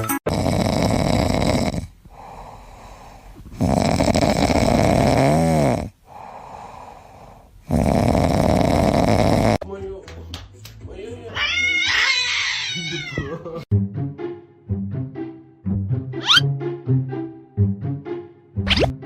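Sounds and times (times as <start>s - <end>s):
pet snoring: 0.3s - 9.6s
quiet breathing: 1.8s - 3.6s, 5.9s - 7.7s.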